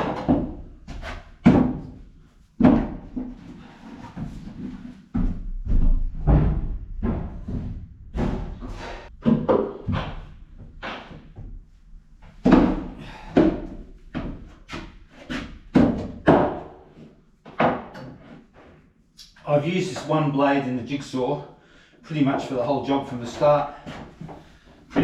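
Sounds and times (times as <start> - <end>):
tools and timber knocking on wood: 12.4 - 16.7, 17.4 - 18.2.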